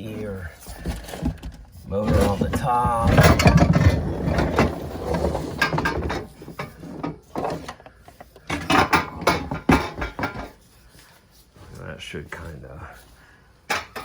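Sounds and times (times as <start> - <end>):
knocks and clatter of handled parts: 0.6 - 10.8, 13.7 - 14.0.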